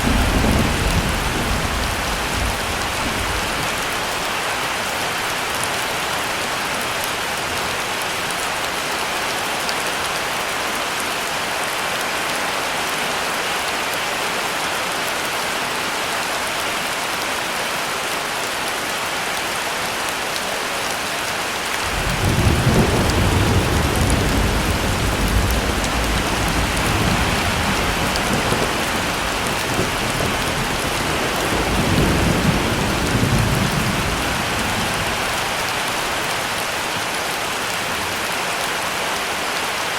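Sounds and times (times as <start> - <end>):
thunder rumbling: 0.0 - 3.8, 21.8 - 35.4
heavy rain falling: 0.0 - 39.9.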